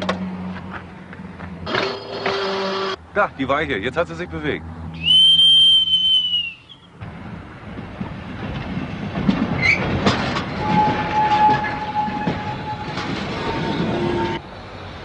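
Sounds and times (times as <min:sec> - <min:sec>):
wheels clacking over rail joints: 0:00.0 - 0:03.0, 0:07.0 - 0:14.4
freight wagons rolling on rails: 0:01.6 - 0:03.0, 0:07.0 - 0:15.0
thin steady wheel squeal: 0:10.6 - 0:14.4.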